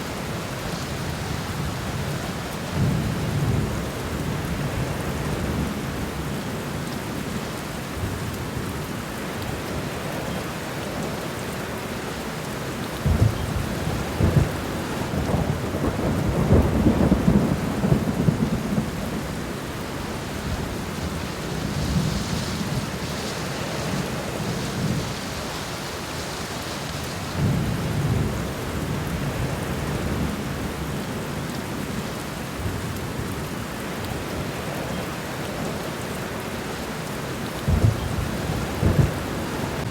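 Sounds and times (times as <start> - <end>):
rain falling on ground: 0.0 - 39.9.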